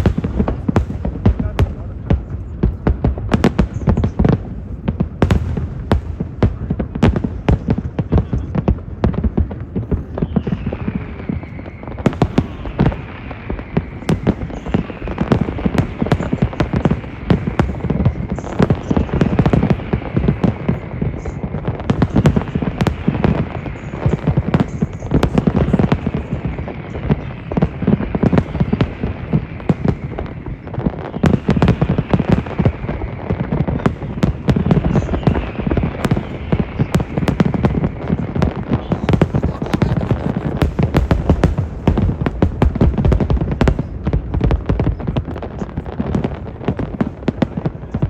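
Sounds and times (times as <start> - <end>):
fireworks booming and crackling: 0.0 - 48.0.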